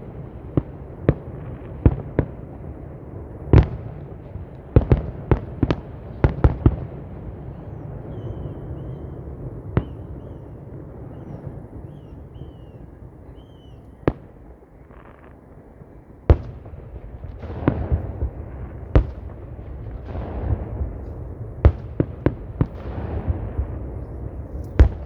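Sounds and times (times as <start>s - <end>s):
fireworks bangs: 0.0s - 25.0s
steady low rumble: 15.6s - 25.0s.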